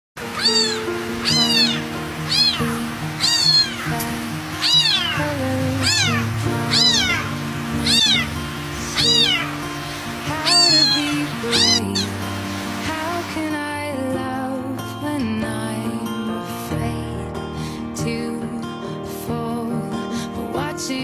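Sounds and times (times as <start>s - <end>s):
cat meowing: 0.2s - 12.2s
background music with held notes: 0.2s - 21.0s.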